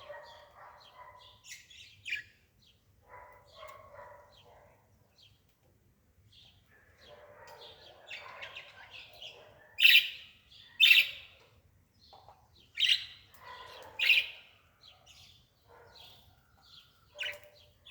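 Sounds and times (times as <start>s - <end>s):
bird sharp calls: 7.5s - 11.3s, 12.8s - 14.4s.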